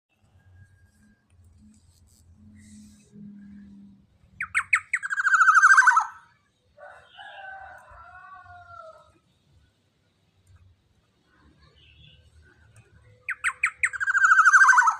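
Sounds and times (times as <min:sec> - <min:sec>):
drawn-out falling bird call: 0:04.4 - 0:06.2, 0:13.3 - 0:14.9
harsh pulsing bird call: 0:04.4 - 0:06.3, 0:13.3 - 0:14.9.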